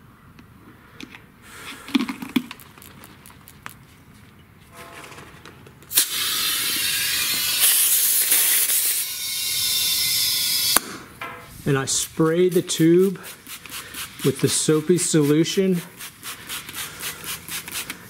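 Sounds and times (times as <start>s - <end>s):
compressed air hissing: 11.6s - 15.2s.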